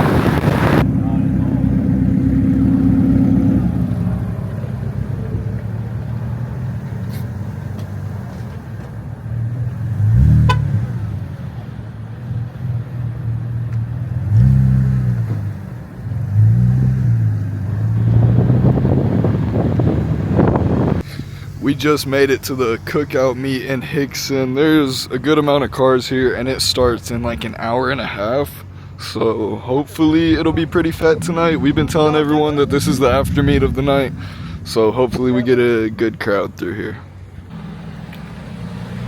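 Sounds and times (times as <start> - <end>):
car engine revving: 0.0 - 25.7, 29.8 - 39.0.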